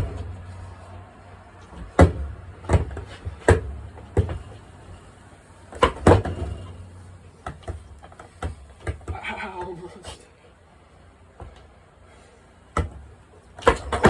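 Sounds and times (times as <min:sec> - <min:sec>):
low rumble of skateboard wheels: 0:00.0 - 0:09.3
skateboard deck clacking: 0:05.8 - 0:06.8, 0:13.6 - 0:14.0.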